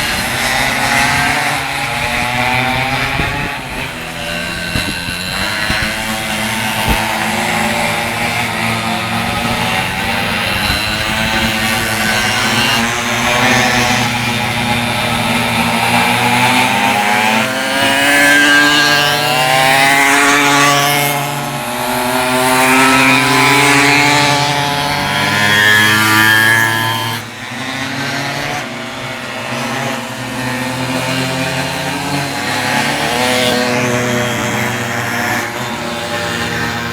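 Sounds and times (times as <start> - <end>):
pocket bike engines racing past: 0.0 - 36.9.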